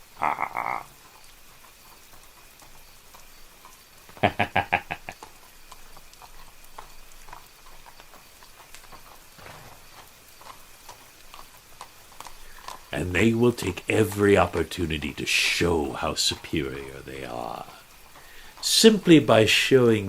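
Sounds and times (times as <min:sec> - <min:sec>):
man laughing: 0:00.2 - 0:00.8, 0:04.2 - 0:05.2
faint ticks: 0:00.6 - 0:19.9.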